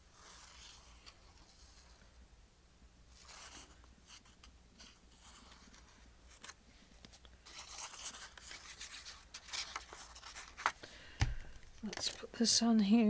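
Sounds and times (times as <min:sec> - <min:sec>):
paper rustling and scratching: 0:00.0 - 0:02.1, 0:03.1 - 0:10.8.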